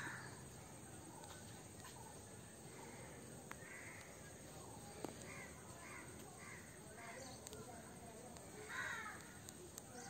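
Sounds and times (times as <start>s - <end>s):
distant caw-like bird calls: 0.0s - 0.5s, 2.7s - 4.4s, 5.0s - 7.4s, 8.5s - 9.5s
faint clicks: 5.0s - 5.4s, 7.2s - 7.7s, 8.3s - 10.0s.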